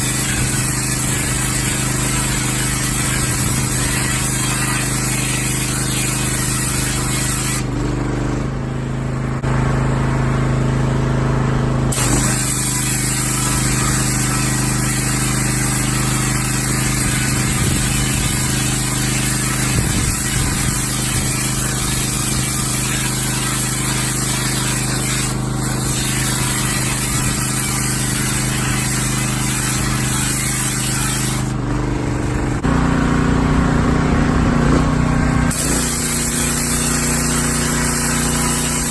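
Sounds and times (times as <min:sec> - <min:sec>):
pressure washer pump hum: 0:00.0 - 0:38.9
sand and water blasting metal: 0:00.0 - 0:38.9.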